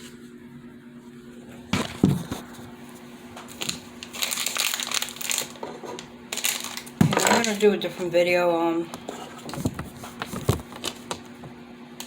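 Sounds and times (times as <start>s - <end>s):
packaging rustling and crinkling: 1.8s - 8.0s, 9.2s - 11.3s.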